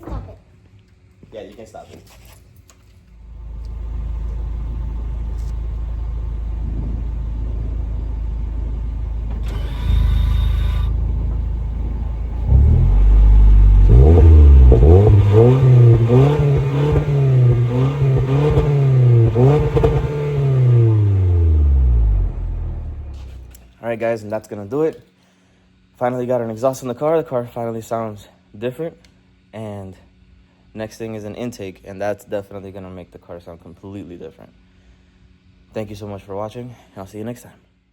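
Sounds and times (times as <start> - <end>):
car engine idling and revving: 3.2 - 23.6.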